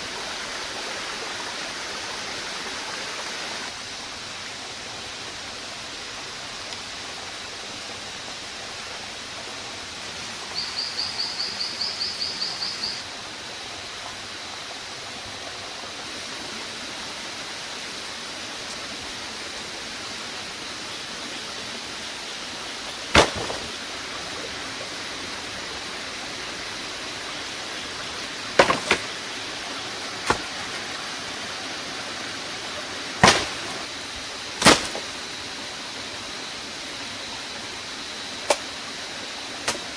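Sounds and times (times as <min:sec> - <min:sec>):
running water: 0:00.0 - 0:39.9
sharp knocks: 0:23.1 - 0:23.7, 0:28.6 - 0:29.1, 0:33.2 - 0:33.8.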